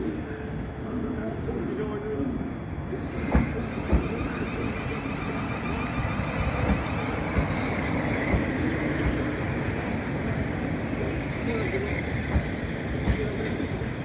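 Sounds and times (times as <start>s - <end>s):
train rumbling: 2.8s - 14.0s.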